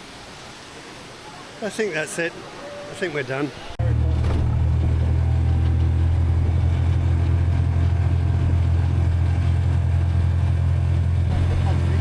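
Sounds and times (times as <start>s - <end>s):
motorcycle engine droning: 3.8s - 12.0s.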